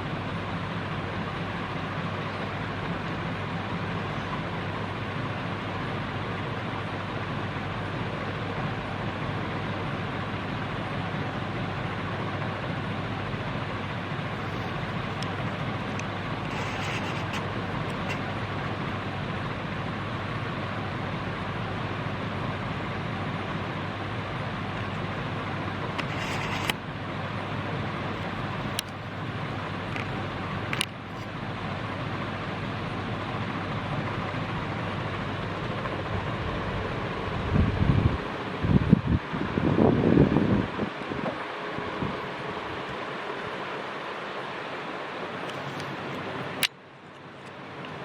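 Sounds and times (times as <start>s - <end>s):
ceiling fan running: 0.0s - 48.0s
brief rustles: 16.5s - 18.3s, 26.0s - 26.8s.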